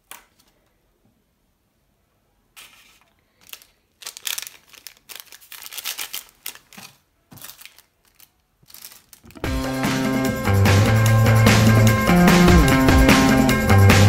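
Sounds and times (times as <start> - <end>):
candy packet crinkling and tearing: 2.7 - 9.5.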